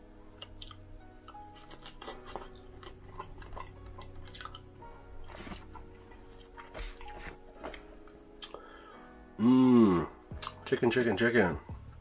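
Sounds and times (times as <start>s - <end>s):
person chewing wetly: 0.4s - 7.8s, 8.4s - 8.6s.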